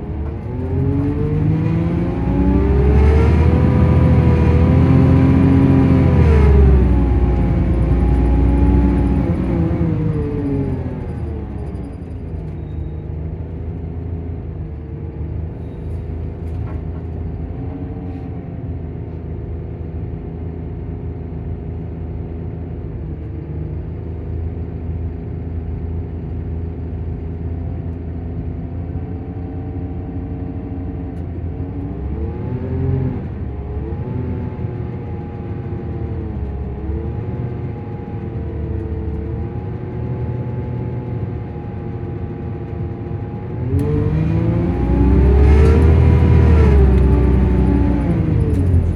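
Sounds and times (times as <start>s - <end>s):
diesel engine droning: 0.0s - 48.9s.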